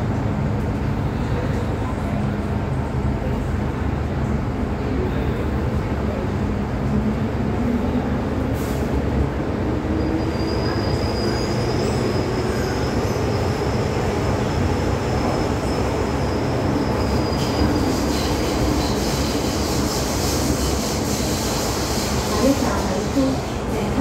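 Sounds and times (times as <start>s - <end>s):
metro train wheels rumbling on rail: 0.0s - 24.0s
high wheel squeal: 9.9s - 14.1s, 15.2s - 23.4s.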